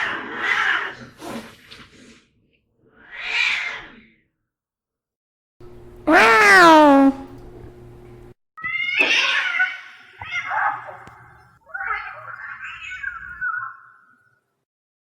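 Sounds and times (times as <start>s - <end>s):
cat meowing: 6.1s - 7.2s, 8.6s - 11.1s.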